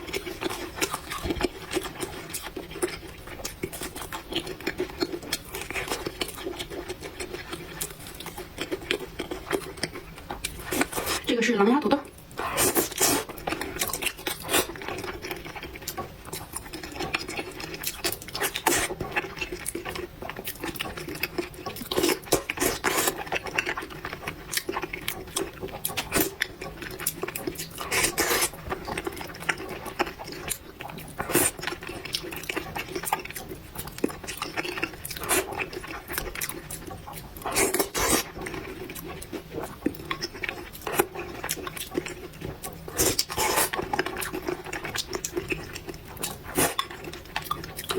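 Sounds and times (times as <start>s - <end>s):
chewing and slurping noodles: 0.0s - 11.3s, 12.1s - 47.9s.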